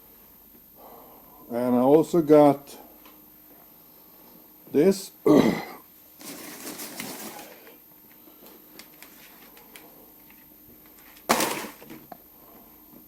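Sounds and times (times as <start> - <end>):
handling rustle: 6.2 - 7.6.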